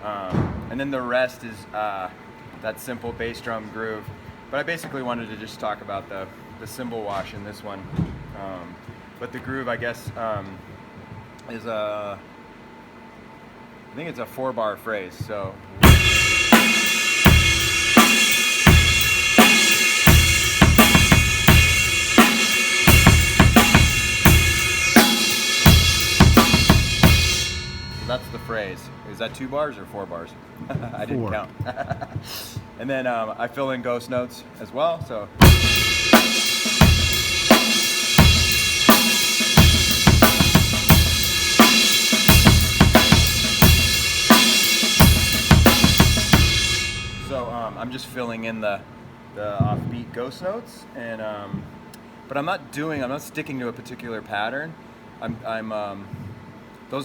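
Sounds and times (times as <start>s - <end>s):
snare ghost notes: 15.8s - 29.5s, 35.4s - 48.2s
drum kit rock groove: 15.8s - 29.8s, 35.4s - 48.3s
crash cymbal wash: 15.8s - 30.1s, 35.4s - 48.3s.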